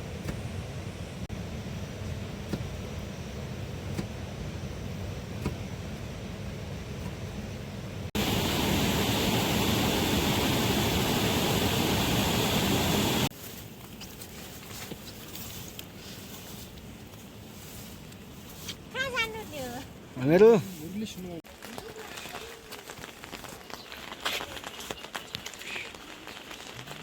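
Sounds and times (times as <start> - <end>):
heavy rain: 8.2 - 13.3.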